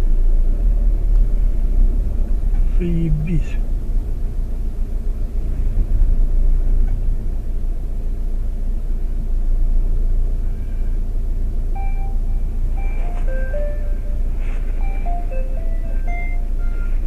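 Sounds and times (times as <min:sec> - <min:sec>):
car interior rumble: 0:00.0 - 0:17.0
mobile phone ringtone: 0:11.8 - 0:17.0.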